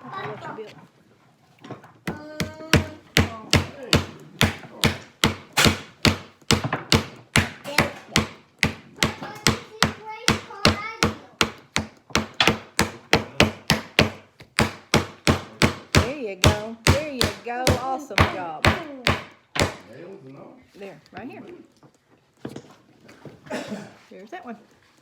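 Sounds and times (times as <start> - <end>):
hammer striking nail into wood: 2.1 - 19.9.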